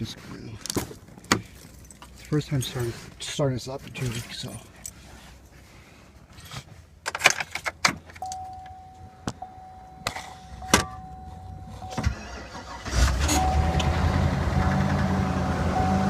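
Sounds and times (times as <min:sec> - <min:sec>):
engine cranking and starting: 0:11.8 - 0:15.9.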